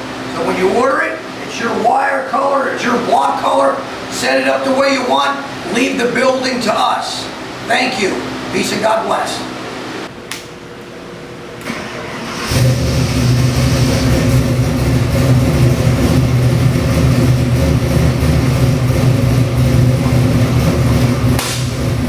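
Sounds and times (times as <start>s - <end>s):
car engine running: 12.2s - 22.0s.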